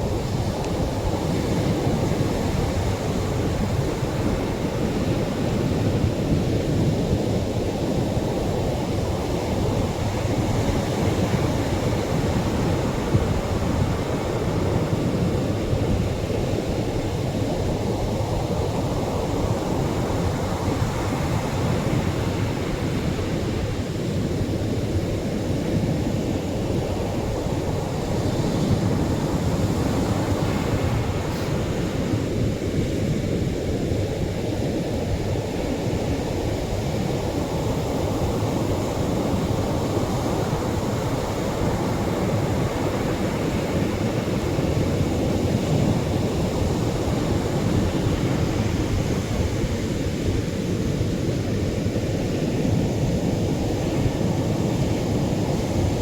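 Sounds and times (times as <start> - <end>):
surf breaking on shore: 27.5 - 32.5.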